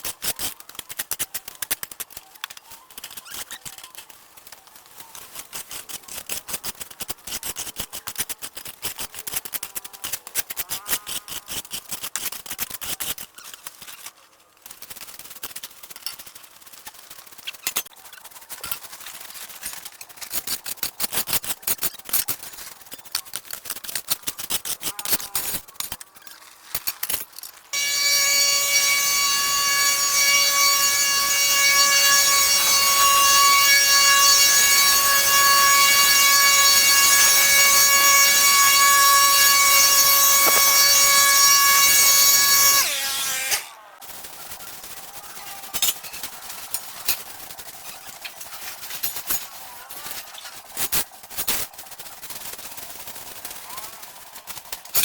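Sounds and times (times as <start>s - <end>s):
machine whining: 27.8s - 43.8s.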